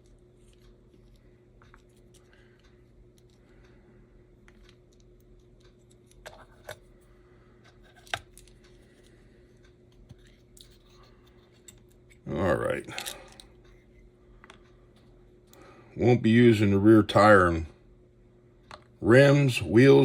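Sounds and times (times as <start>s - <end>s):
small parts clicking and tapping: 0.0s - 3.8s, 4.4s - 7.0s, 7.6s - 15.6s
low steady hum: 0.0s - 20.0s.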